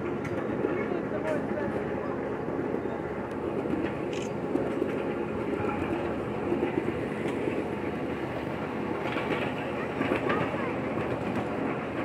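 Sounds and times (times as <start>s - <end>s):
rumble of wheels on rail: 0.0s - 12.0s.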